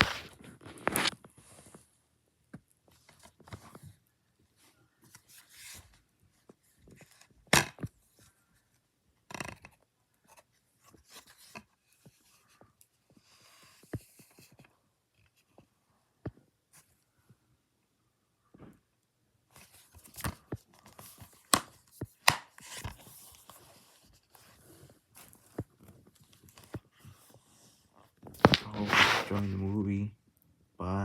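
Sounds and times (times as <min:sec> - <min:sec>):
plastic wrap rustling and tearing: 0:00.0 - 0:01.1, 0:28.3 - 0:29.7.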